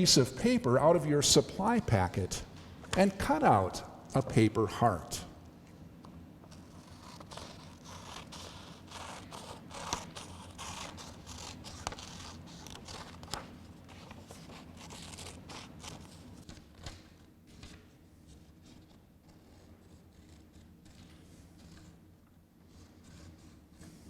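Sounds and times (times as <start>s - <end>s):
scissors snipping paper: 6.5s - 17.0s
paper rustling: 6.5s - 19.6s.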